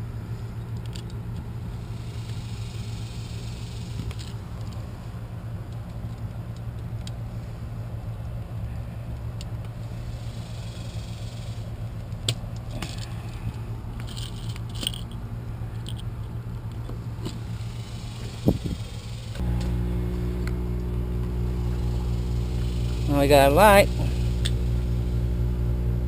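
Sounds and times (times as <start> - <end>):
steady low hum: 0.0 - 26.0
small metallic jingles: 14.0 - 15.2.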